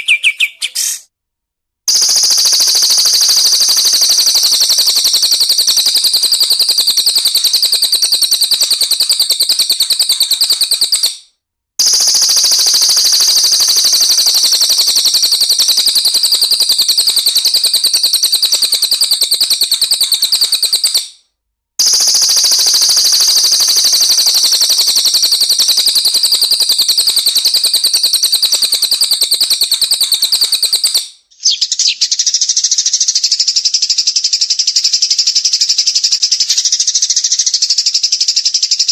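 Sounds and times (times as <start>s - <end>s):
bird fast high-pitched trill: 0.0s - 1.0s, 1.9s - 11.2s, 11.8s - 21.1s, 21.8s - 38.9s
different high-pitched bird: 0.0s - 1.0s, 30.4s - 32.6s.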